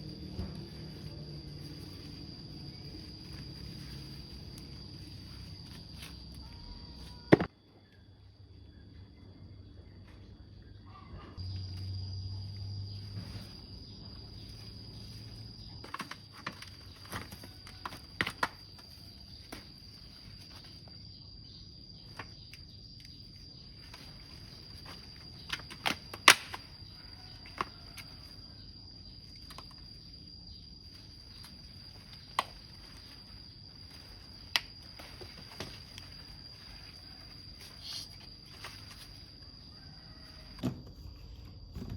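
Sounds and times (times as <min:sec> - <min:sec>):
insect trilling: 0:00.0 - 0:08.8, 0:10.7 - 0:40.6
faint insect hiss: 0:00.0 - 0:10.4, 0:18.4 - 0:40.6
sharp snaps and rustles: 0:14.6 - 0:20.9, 0:22.1 - 0:28.4, 0:30.8 - 0:39.6.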